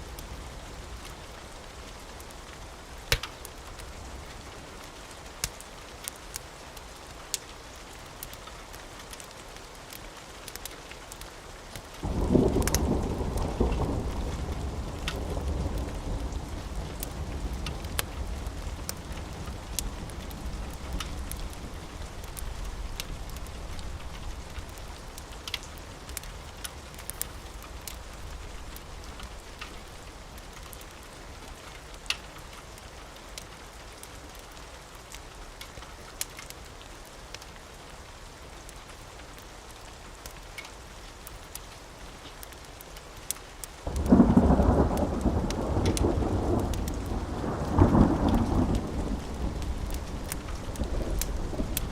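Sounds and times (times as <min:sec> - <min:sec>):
steady rain: 0:00.0 - 0:51.9
wood fire crackling: 0:00.0 - 0:51.9
thunder rumble: 0:12.0 - 0:30.2, 0:43.9 - 0:51.9.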